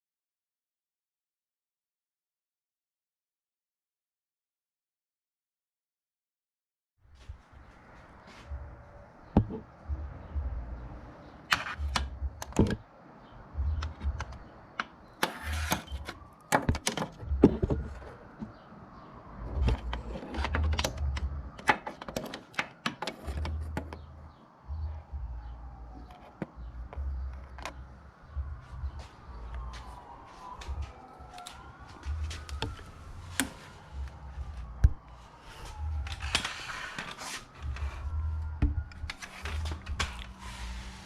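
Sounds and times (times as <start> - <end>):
low rumbling bursts: 26.6 - 36.3.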